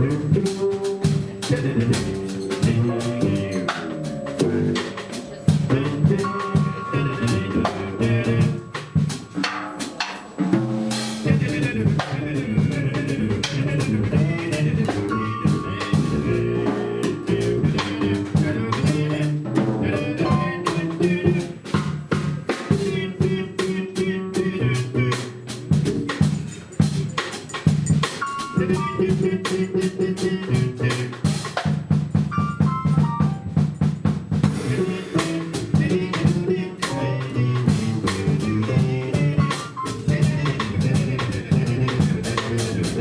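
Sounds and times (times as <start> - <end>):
walking bass line: 0.0 - 9.3
drum kit cymbals and snare: 0.0 - 43.0
melody instruments: 2.4 - 9.7, 15.1 - 17.0, 32.3 - 33.9.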